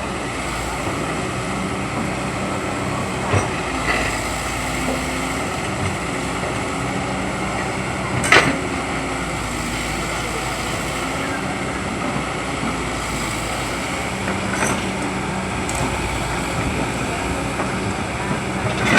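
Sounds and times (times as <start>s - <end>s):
excavator engine running: 0.0s - 18.9s.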